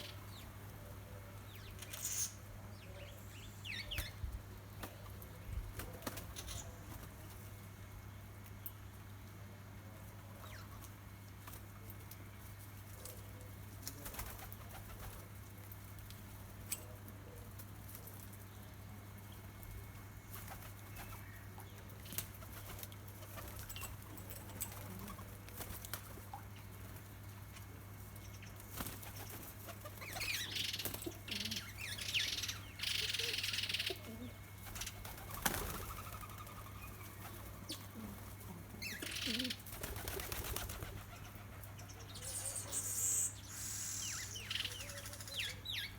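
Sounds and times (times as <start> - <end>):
birds fluttering wings: 4.6 - 7.6, 10.7 - 18.5, 19.4 - 31.7, 34.0 - 42.2.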